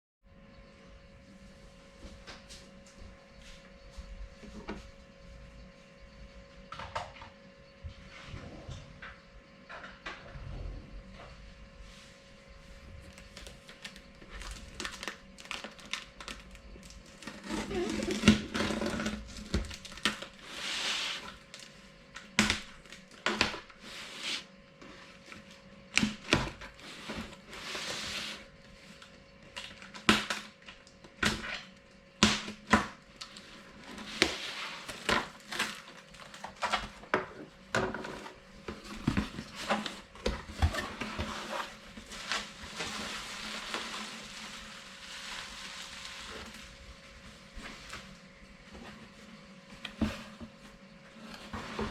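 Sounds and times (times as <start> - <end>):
packaging rustling and crinkling: 13.0 - 31.7, 32.5 - 51.9.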